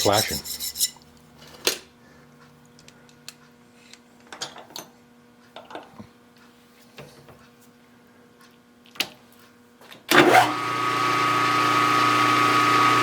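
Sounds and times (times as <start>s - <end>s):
faint electrical hum: 0.0s - 10.1s.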